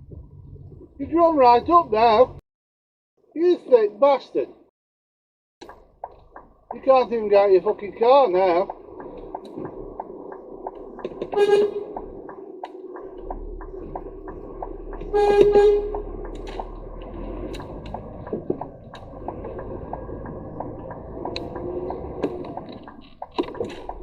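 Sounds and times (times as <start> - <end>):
steady ticking: 5.6 - 24.0
vehicle horn: 11.4 - 11.9, 15.1 - 16.1.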